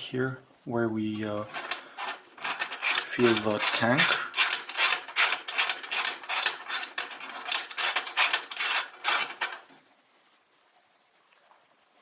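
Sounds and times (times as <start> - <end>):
metal filler cap threads grating: 1.4 - 9.8.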